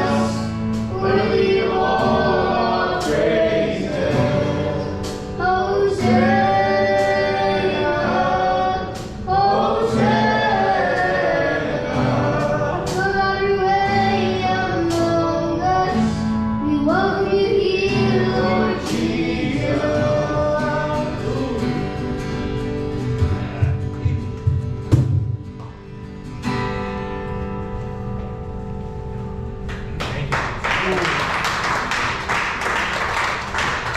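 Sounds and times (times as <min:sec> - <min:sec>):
group singing worship song: 0:00.0 - 0:23.5
instrumental backing: 0:00.0 - 0:30.0.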